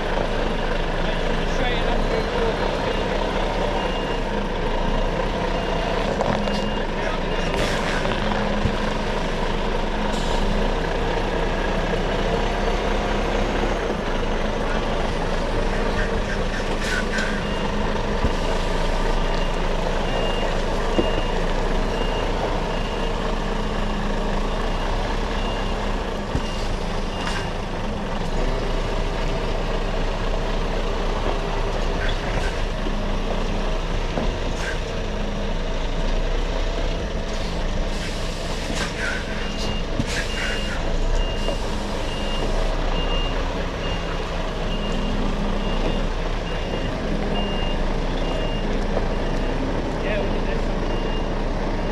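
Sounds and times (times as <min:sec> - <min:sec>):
diesel engine running: 0:00.0 - 0:51.9
reversing alarm beeping: 0:13.2 - 0:27.6, 0:39.0 - 0:49.7, 0:50.3 - 0:51.9.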